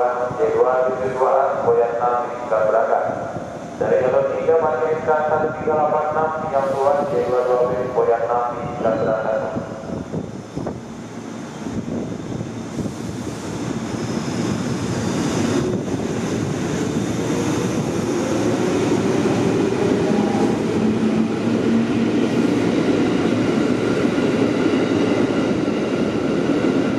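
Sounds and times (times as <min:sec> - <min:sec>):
train wheels rumbling on rails: 0:00.0 - 0:26.9.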